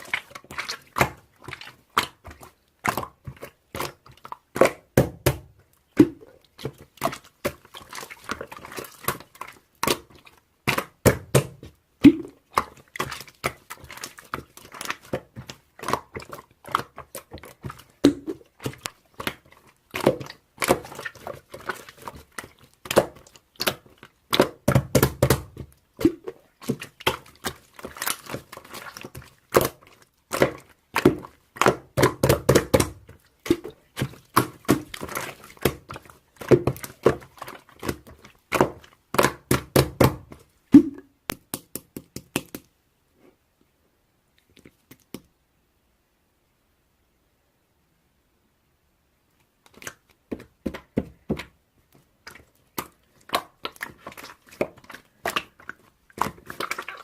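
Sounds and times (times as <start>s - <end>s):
slime popping and crackling: 0.0s - 42.6s
slime squelching thumps: 0.0s - 42.7s, 49.7s - 57.0s.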